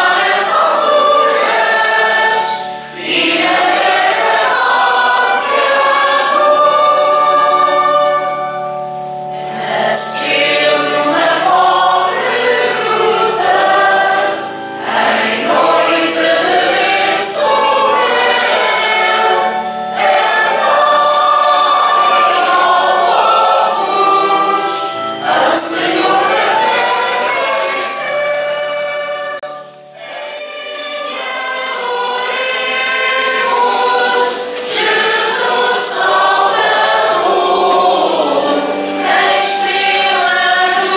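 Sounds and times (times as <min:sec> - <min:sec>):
choir singing a hymn: 0:00.0 - 0:40.9
low held accompaniment: 0:00.0 - 0:40.9.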